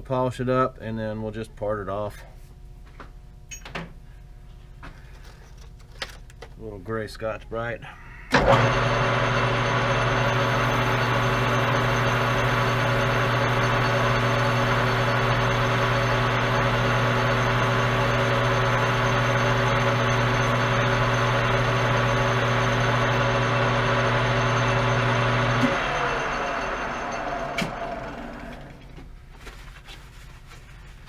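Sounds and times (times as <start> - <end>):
lathe motor hum: 8.4 - 28.9.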